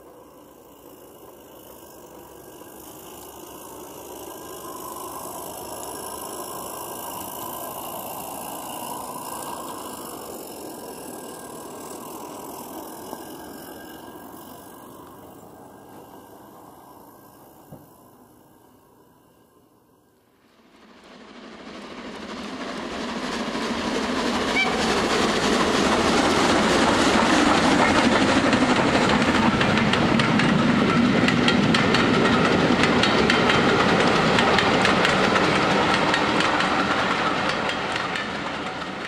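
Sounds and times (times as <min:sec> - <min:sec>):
train wheels clacking on rails: 0:21.0 - 0:39.0.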